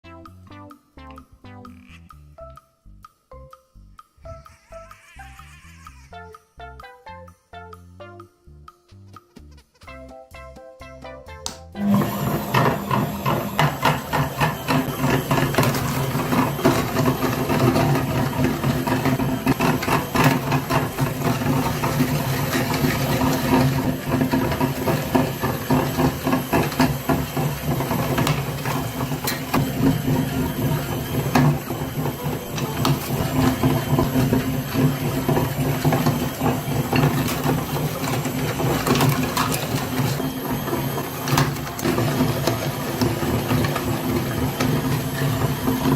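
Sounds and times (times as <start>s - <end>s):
meat grinder motor hum: 11.8s - 45.9s.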